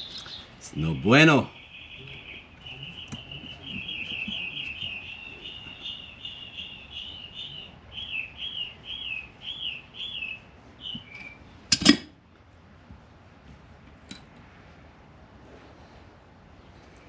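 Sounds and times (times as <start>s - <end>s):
songbird trilling and singing: 0.0s - 11.5s.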